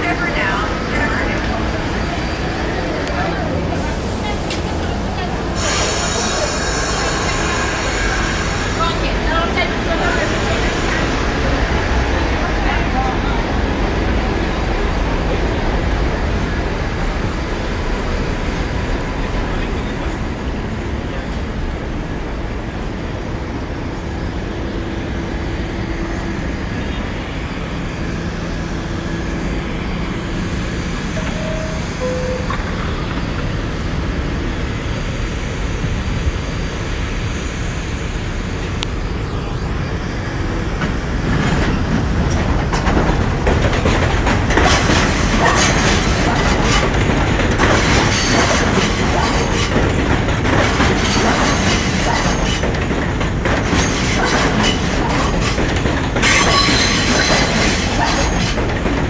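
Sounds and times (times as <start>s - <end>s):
subway car wheels on rail: 0.0s - 59.0s
wheel squeal: 56.2s - 58.5s.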